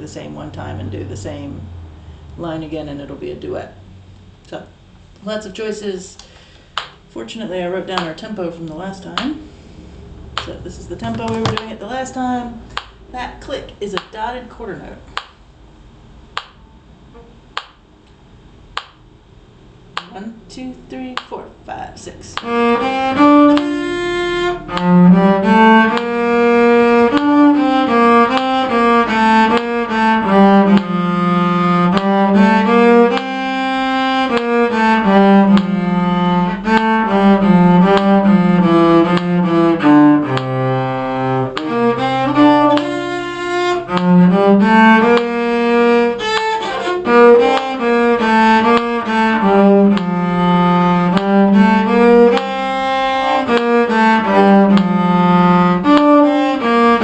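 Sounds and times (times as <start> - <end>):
solo cello melody: 0.0 - 4.3, 10.2 - 12.4, 22.3 - 57.0.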